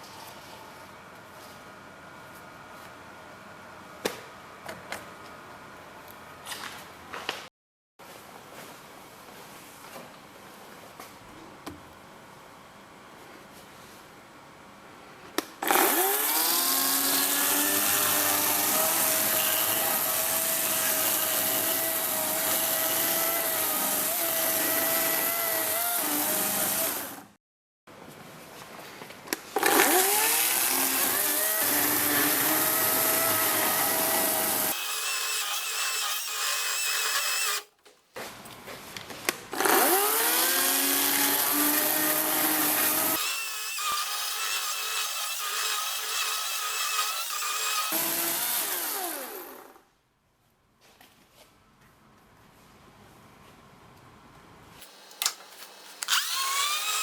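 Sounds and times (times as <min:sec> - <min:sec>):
power tool cutting wood: 0:15.6 - 0:27.3, 0:29.6 - 0:37.7, 0:39.6 - 0:49.8, 0:54.8 - 0:57.0.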